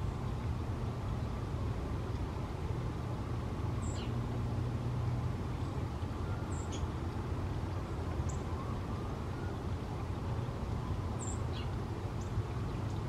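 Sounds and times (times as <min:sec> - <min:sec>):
small birds chirping: 0:03.8 - 0:04.2, 0:08.2 - 0:08.6, 0:11.2 - 0:13.0.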